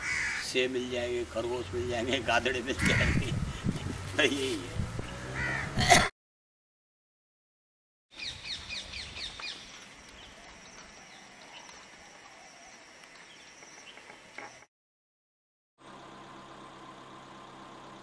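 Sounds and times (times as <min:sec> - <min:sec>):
outdoor background: 0:00.0 - 0:06.1, 0:08.1 - 0:14.7, 0:15.8 - 0:18.0
bird chirping: 0:08.2 - 0:14.7.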